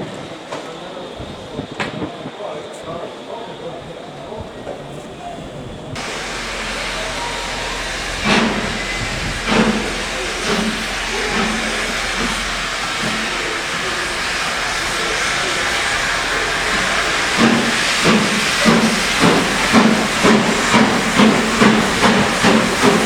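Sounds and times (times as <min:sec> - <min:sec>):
steam locomotive exhaust chuffs: 0:05.9 - 0:23.0
steam locomotive drain cocks hissing: 0:06.0 - 0:23.0.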